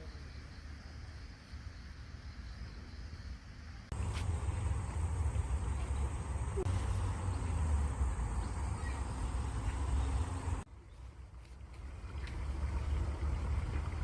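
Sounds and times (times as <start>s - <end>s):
running water: 4.0s - 14.0s.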